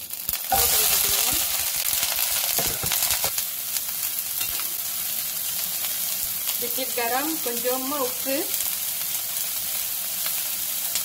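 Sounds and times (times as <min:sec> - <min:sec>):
vegetables sizzling in oil: 0:00.0 - 0:11.0
spatula knocking and scraping pan: 0:02.5 - 0:03.3.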